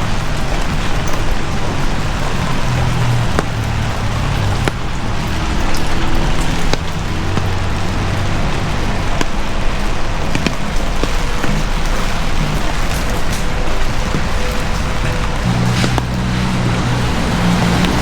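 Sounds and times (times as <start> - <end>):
heavy rain hissing: 0.0 - 18.0
sharp drip ticks: 0.0 - 18.0.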